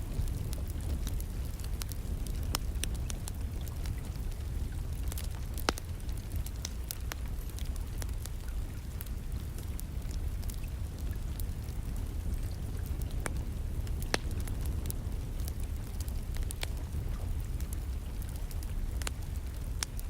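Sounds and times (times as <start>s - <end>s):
rain: 0.0s - 20.0s
wood fire crackling: 0.0s - 20.0s.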